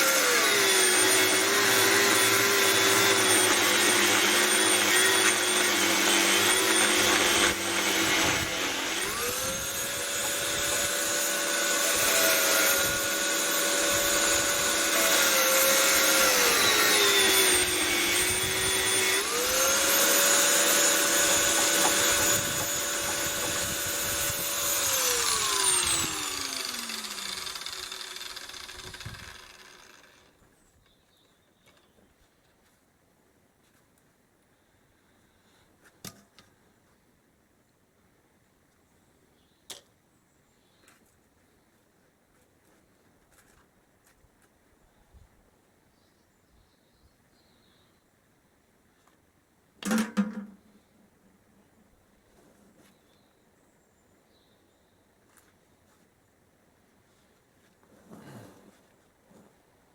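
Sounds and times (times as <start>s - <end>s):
power tool motor whining: 0.0s - 30.4s.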